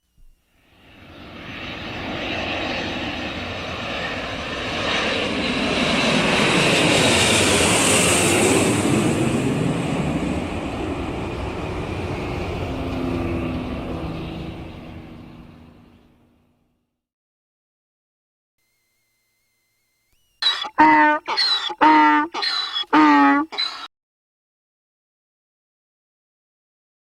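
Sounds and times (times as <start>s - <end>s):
aeroplane engine flying past: 0.6s - 16.6s, 20.4s - 23.9s.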